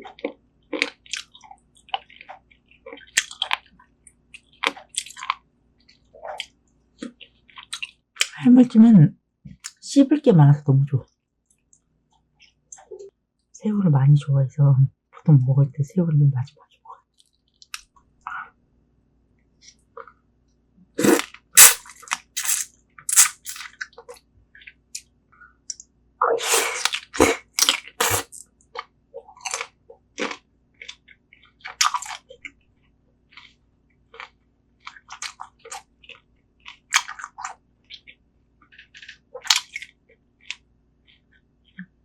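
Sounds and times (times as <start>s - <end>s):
chewing and crunching: 0.0s - 8.0s, 26.3s - 42.0s.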